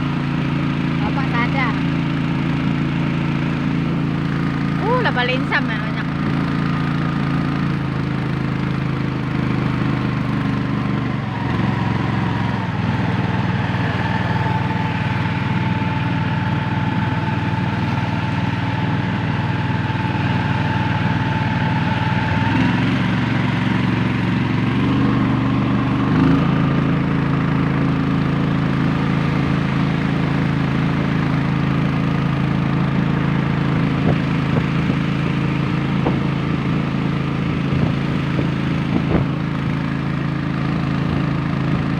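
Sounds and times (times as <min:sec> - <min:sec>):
small boat engine running: 0:00.0 - 0:41.9.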